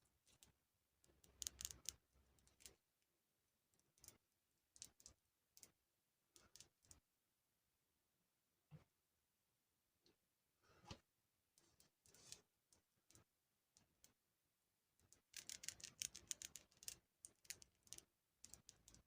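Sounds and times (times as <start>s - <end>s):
clicks and taps on small objects: 0.3s - 2.8s, 3.8s - 7.0s, 15.0s - 19.0s.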